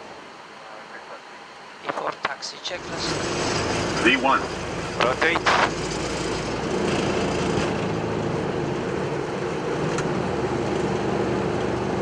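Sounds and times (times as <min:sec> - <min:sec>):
runway rumble: 0:00.3 - 0:12.0
jet engine and airflow rush: 0:02.6 - 0:12.0.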